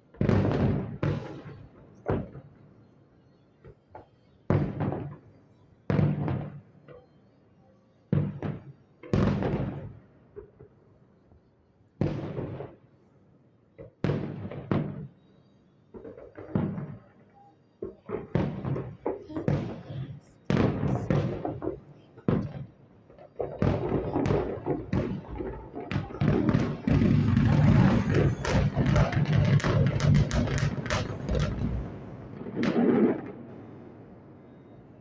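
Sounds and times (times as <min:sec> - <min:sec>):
fireworks booming: 0:00.1 - 0:02.4, 0:04.5 - 0:05.1, 0:05.9 - 0:06.6, 0:08.1 - 0:10.0, 0:12.0 - 0:12.8, 0:14.0 - 0:15.1, 0:16.0 - 0:17.0, 0:17.8 - 0:35.0.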